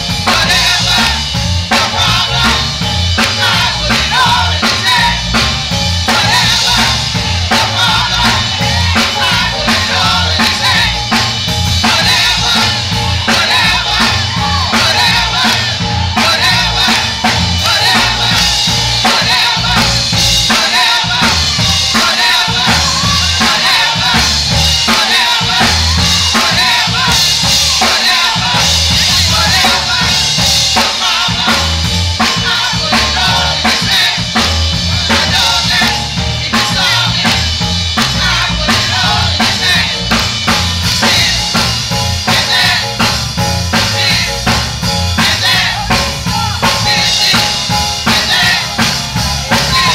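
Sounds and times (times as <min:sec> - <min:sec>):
bass: 0:00.0 - 0:49.9
drum kit: 0:00.0 - 0:49.9
gospel choir singing: 0:00.0 - 0:49.9.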